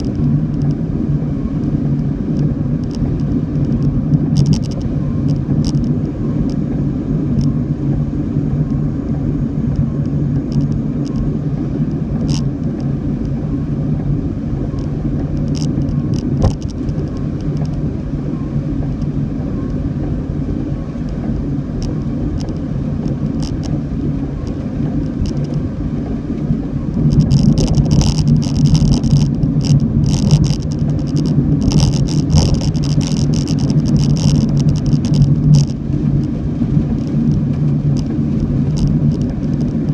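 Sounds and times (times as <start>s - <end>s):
car engine and road noise: 0.0s - 39.9s
dense crackling hiss: 20.6s - 39.9s.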